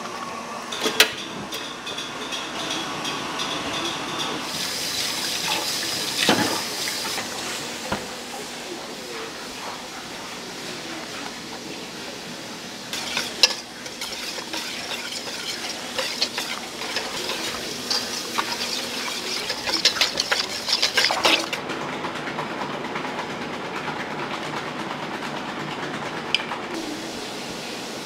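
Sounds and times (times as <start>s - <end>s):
kitchen clicks and clatter: 0.7s - 4.4s, 5.0s - 7.3s, 12.9s - 22.0s.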